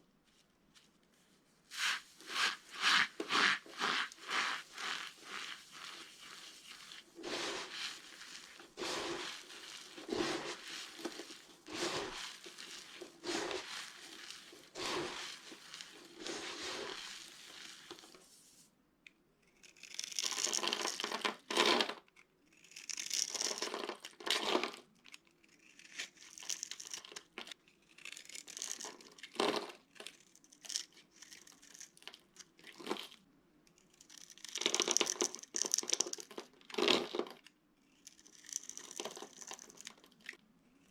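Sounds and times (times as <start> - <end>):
grainy crumbling bursts: 1.8 - 18.3
soap cracking and crunching: 19.4 - 40.9.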